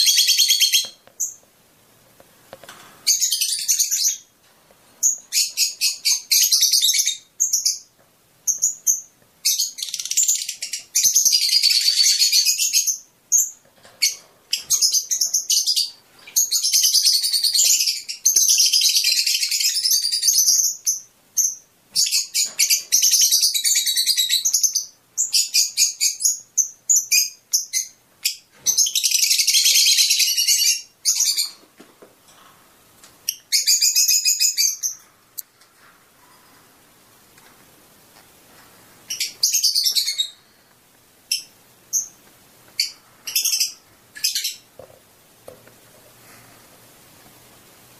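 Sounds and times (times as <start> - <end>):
birds chirping and chattering: 2.7 - 4.3, 5.0 - 31.7, 32.3 - 35.1, 39.0 - 40.6, 41.2 - 44.9.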